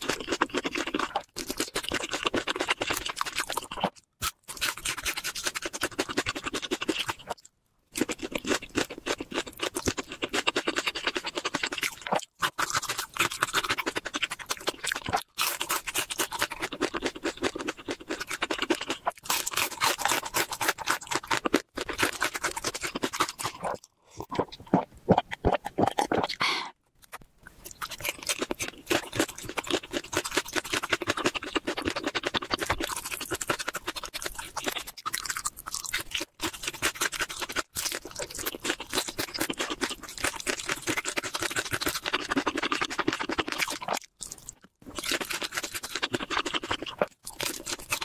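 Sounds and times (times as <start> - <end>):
crunching and chewing fried chicken: 0.0 - 48.0
gulping a drink: 23.4 - 26.7.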